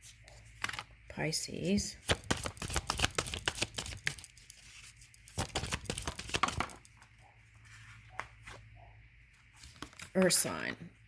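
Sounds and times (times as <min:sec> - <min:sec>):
cards being shuffled: 0:02.0 - 0:07.0, 0:09.6 - 0:10.3.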